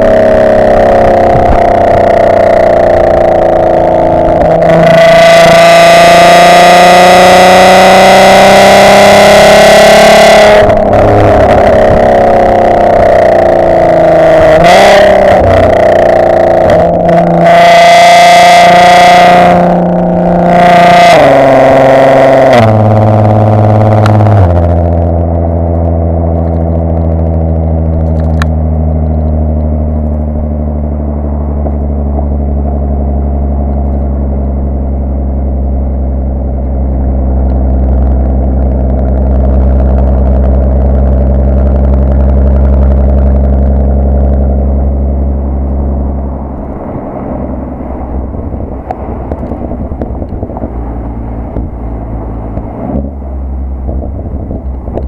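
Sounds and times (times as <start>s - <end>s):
car exhaust note: 0.0s - 55.0s.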